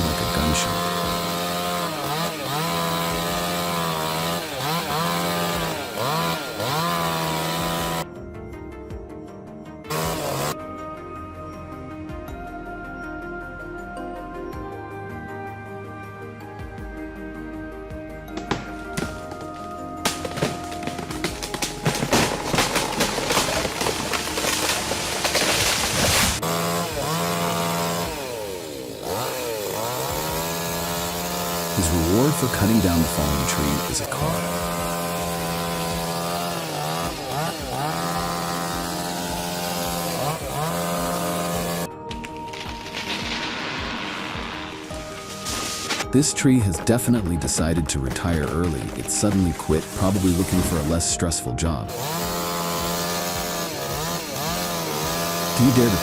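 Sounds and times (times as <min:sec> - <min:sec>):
chainsaw running at high revs: 0:00.0 - 0:08.1, 0:09.9 - 0:10.6, 0:18.3 - 0:46.4, 0:48.3 - 0:51.2, 0:51.9 - 0:56.0
sharp crackling hits: 0:18.4 - 0:26.4, 0:42.1 - 0:46.1.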